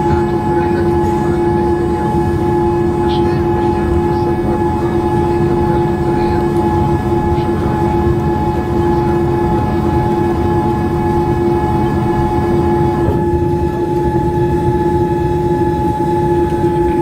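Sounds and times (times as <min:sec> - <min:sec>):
aircraft cabin low rumble: 0:00.0 - 0:17.0.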